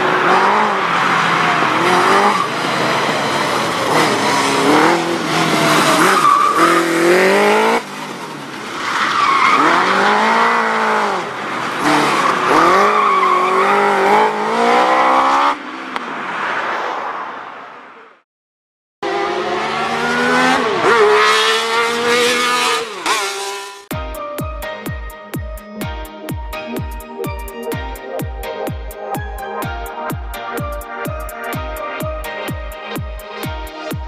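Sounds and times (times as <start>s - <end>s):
racing car engine revving: 0.0s - 15.6s, 19.0s - 23.9s.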